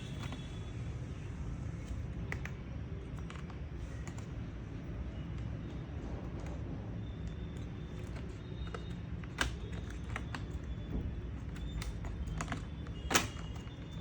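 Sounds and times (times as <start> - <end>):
plastic clicks and taps: 7.3 - 14.0.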